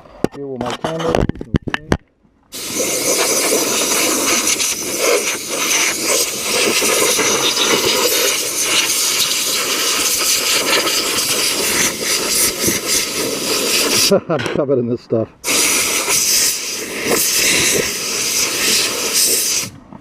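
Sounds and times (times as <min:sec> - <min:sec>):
sandblast gun hissing: 0:02.6 - 0:14.2, 0:15.4 - 0:19.8.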